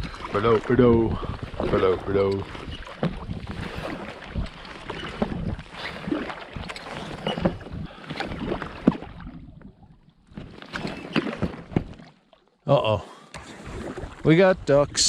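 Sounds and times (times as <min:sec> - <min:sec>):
paddle splashing water: 0:00.0 - 0:15.0.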